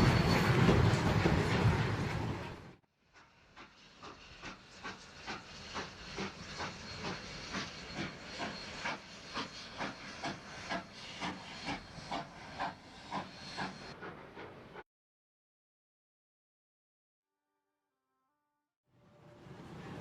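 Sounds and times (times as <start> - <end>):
steam locomotive chuffing: 0.0 - 14.8
steam hissing: 3.2 - 14.6.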